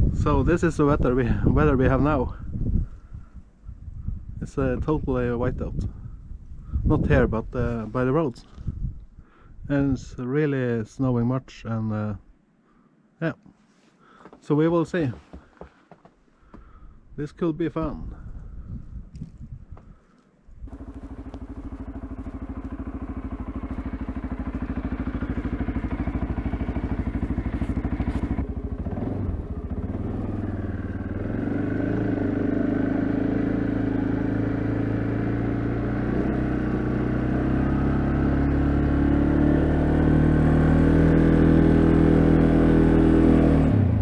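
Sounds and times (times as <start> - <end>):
atv engine running: 20.7 - 44.0.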